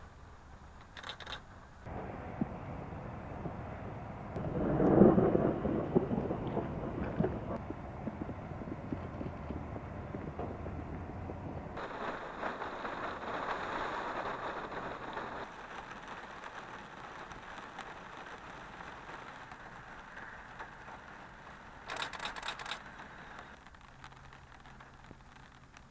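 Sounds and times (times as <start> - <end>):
brief crackle: 0.8 - 25.9
low rumble of thunder: 1.9 - 15.8
rain falling: 1.9 - 25.9.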